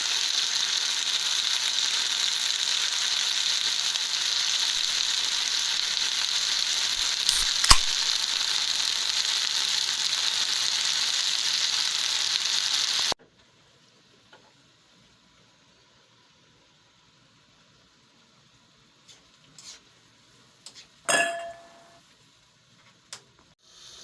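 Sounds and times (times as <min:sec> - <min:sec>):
food sizzling in a frying pan: 0:00.0 - 0:22.9, 0:23.6 - 0:24.0
sharp clicks: 0:05.8 - 0:08.4.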